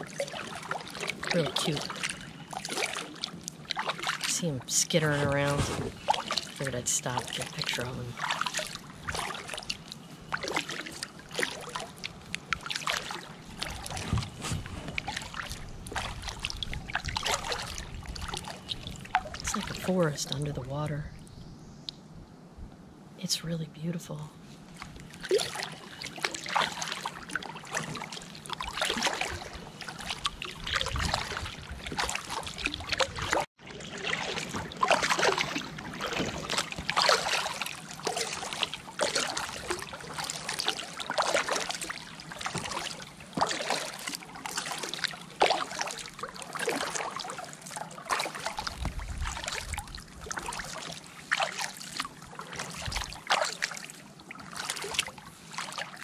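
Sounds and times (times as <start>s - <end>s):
water dripping: 0.0s - 14.0s, 14.9s - 21.0s
kayak paddle strokes in water: 0.0s - 20.8s, 24.4s - 56.0s.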